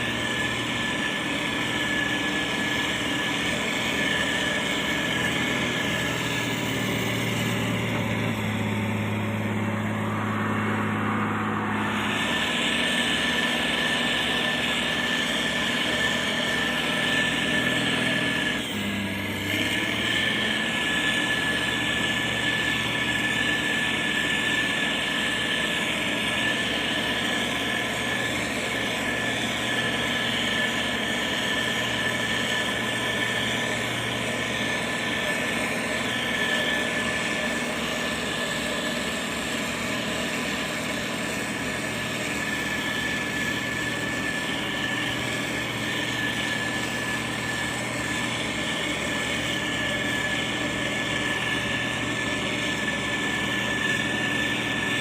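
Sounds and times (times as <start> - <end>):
diesel engine running: 0.0 - 55.0
high whine: 0.0 - 55.0.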